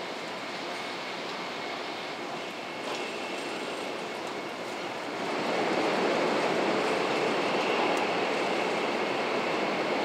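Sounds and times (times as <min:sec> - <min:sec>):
train rushing rumble: 0:02.2 - 0:10.0.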